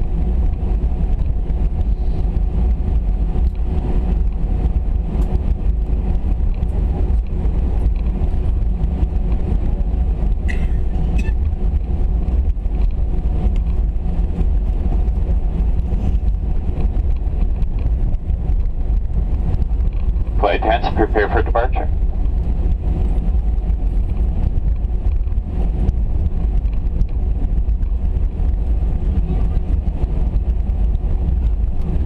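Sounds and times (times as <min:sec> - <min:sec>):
low rumble inside aircraft cabin: 0:00.0 - 0:32.0
faint steady hum: 0:18.9 - 0:24.8.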